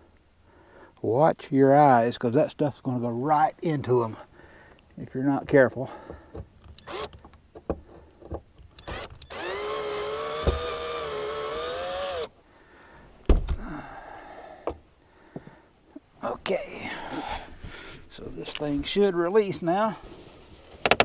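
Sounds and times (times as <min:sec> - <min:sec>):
handling clicks and knocks: 0:04.7 - 0:09.3, 0:20.8 - 0:21.0
drill motor whining: 0:06.7 - 0:07.2, 0:08.8 - 0:12.3
thump: 0:10.4 - 0:10.7, 0:13.2 - 0:13.8.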